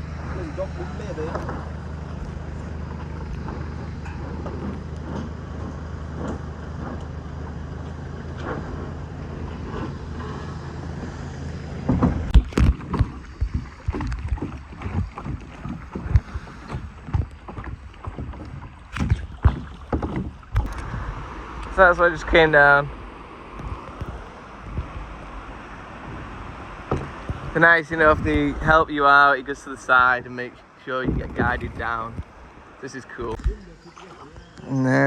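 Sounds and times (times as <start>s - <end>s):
paddle splashing water: 0.0s - 34.8s
water rushing: 0.0s - 35.0s
wind: 0.0s - 35.0s.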